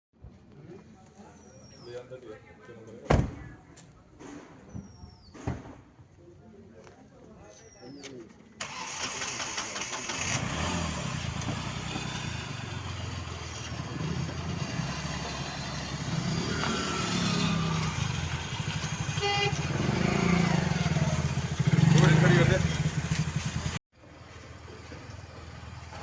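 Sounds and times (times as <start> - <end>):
diesel engine rumble: 8.6 - 26.0.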